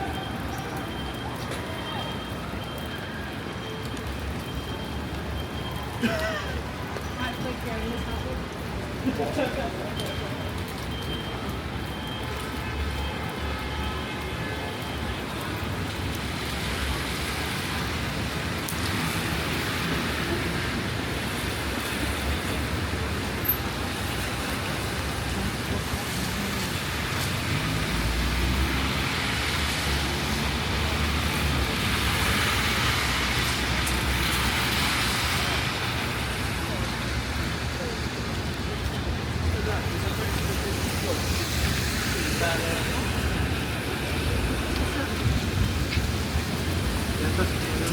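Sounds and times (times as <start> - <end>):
traffic on wet roads: 0.0 - 47.9
rain hissing: 22.4 - 47.9.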